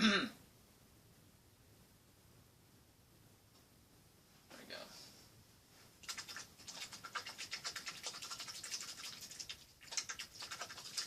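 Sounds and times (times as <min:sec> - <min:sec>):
paintbrush scrubbing on canvas: 0:06.0 - 0:11.0.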